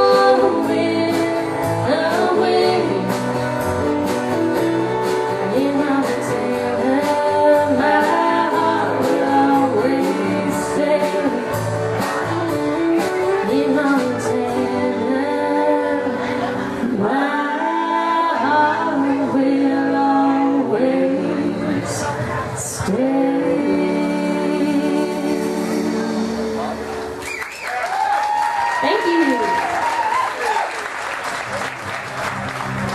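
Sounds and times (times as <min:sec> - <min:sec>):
person singing: 0:00.0 - 0:03.4, 0:04.0 - 0:26.9
strummed guitar: 0:00.0 - 0:27.2.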